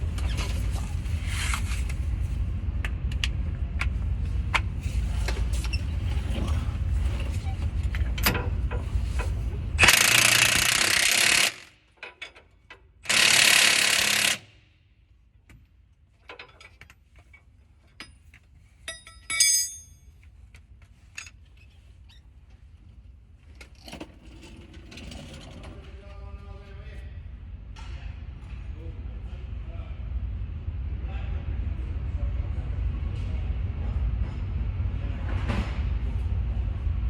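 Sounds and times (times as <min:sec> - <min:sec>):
impact wrench running: 0:09.8 - 0:11.8, 0:13.0 - 0:14.6
ringing clink of tools: 0:18.9 - 0:20.2.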